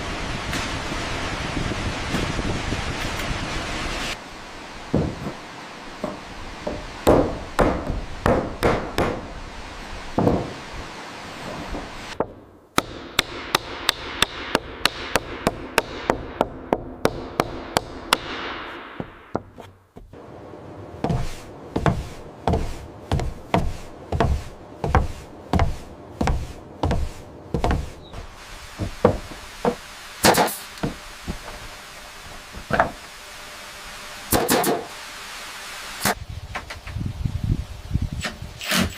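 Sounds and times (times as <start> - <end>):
hard blows on wood: 21.0 - 33.2.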